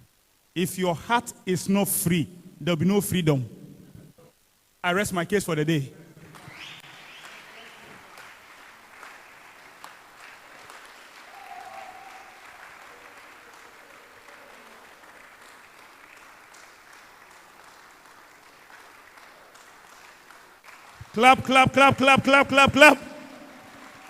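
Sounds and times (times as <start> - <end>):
congregation applauding: 6.2 - 24.0.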